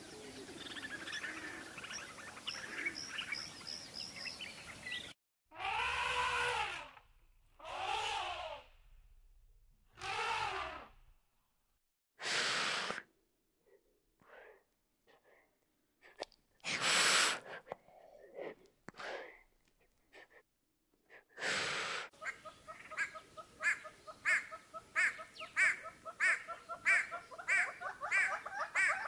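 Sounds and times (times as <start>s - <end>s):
breathy blasts of air: 7.6s - 8.8s, 12.2s - 13.1s, 16.6s - 17.6s, 21.4s - 22.2s
animal calling: 22.2s - 29.0s.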